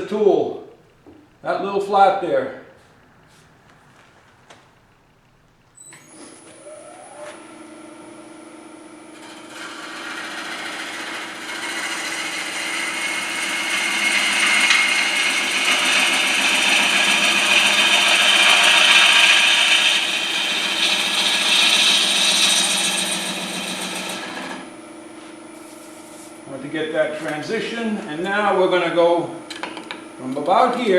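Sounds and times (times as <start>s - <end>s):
lathe motor humming: 0.0s - 30.9s
gouge scraping spinning wood: 9.1s - 24.8s, 25.6s - 29.2s.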